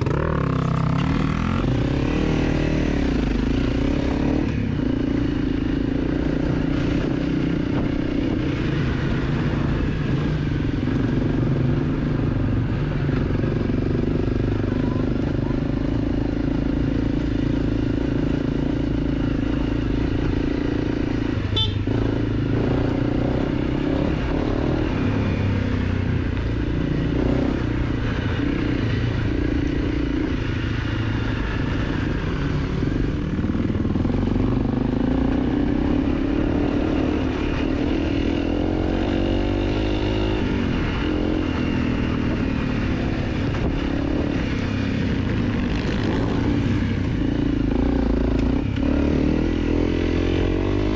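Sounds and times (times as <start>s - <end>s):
dirt bike engine running: 12.8s - 25.2s.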